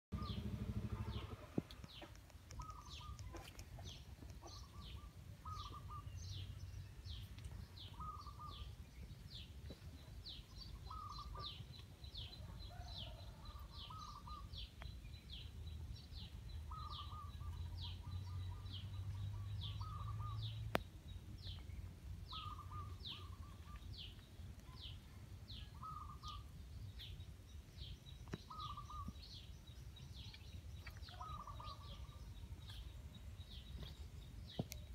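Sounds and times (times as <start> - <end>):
low rumble: 0.1 - 2.1.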